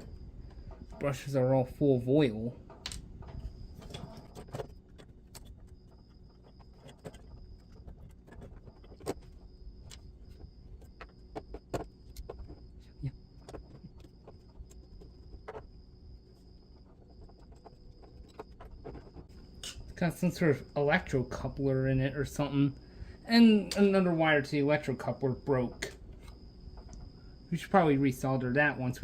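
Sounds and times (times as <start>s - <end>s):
small clicks and taps of parts: 2.7s - 12.6s
faint high-pitched tone: 3.3s - 29.0s.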